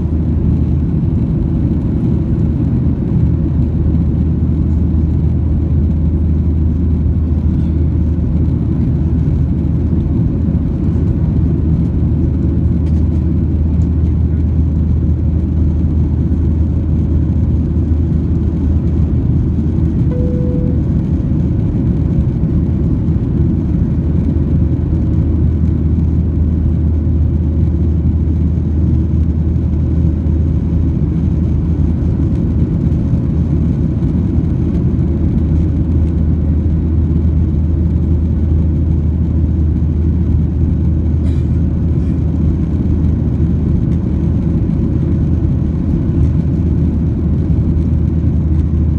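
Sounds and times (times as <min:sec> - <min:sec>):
airliner cabin engine drone: 0:00.0 - 0:48.9
short tone: 0:20.1 - 0:21.5.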